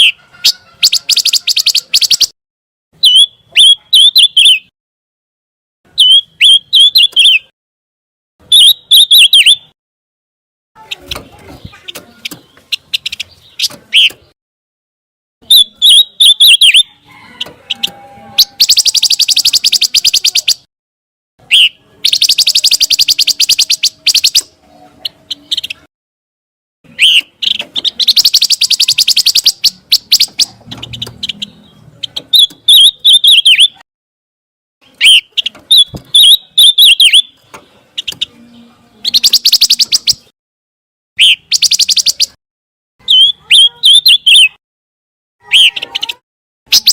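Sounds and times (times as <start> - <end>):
bird chirping and trilling: 0.0 - 2.4, 3.0 - 4.7, 5.9 - 7.5, 8.4 - 9.8, 10.8 - 14.4, 15.4 - 20.7, 21.4 - 25.9, 26.9 - 33.8, 34.8 - 40.3, 41.2 - 42.4, 43.0 - 44.6, 45.4 - 46.9.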